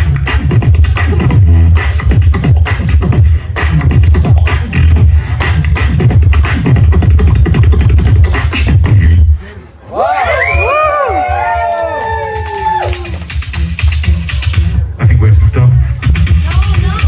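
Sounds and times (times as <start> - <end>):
beatboxing: 0.0 - 9.6, 11.2 - 17.0.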